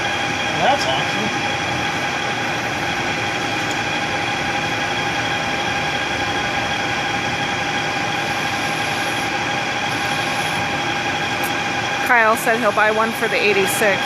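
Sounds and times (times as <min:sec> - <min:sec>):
metal lathe humming and whining: 0:00.0 - 0:14.0.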